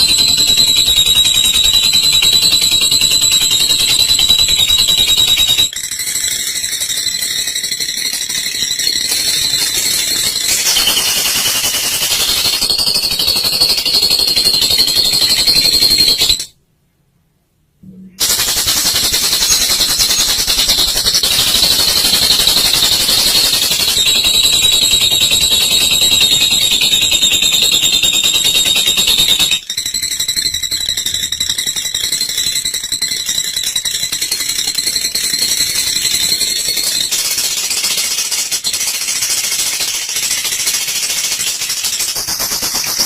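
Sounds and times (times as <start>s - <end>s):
bird chattering trill: 18.1s - 25.0s.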